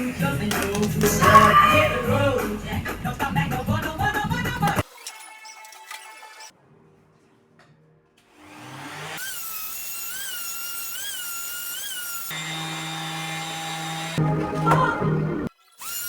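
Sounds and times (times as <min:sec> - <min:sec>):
power tool whine: 0:08.3 - 0:14.3, 0:15.6 - 0:16.0.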